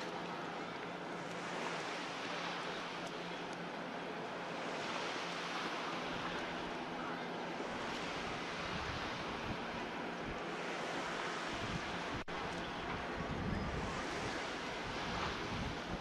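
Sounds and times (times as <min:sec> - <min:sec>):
rushing water: 0:00.0 - 0:16.0
rushing wind: 0:04.2 - 0:16.0
wind buffeting microphone: 0:07.5 - 0:16.0.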